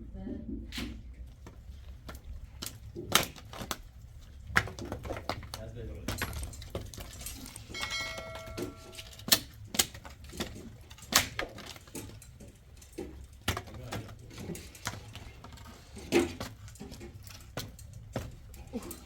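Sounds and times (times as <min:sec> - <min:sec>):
hard objects knocking and clattering: 0:01.2 - 0:19.0
metallic ring: 0:07.3 - 0:09.2.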